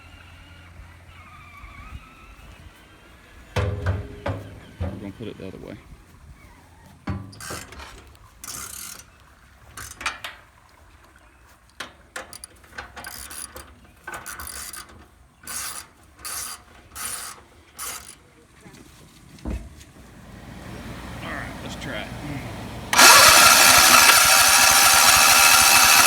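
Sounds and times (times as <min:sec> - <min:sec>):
ratchet wrench clicking: 0:07.3 - 0:07.7, 0:15.5 - 0:18.2, 0:23.0 - 0:26.0.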